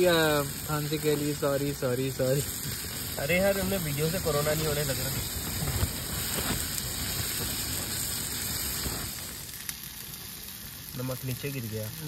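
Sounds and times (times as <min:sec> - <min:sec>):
onions sizzling in a wok: 0:00.0 - 0:12.0.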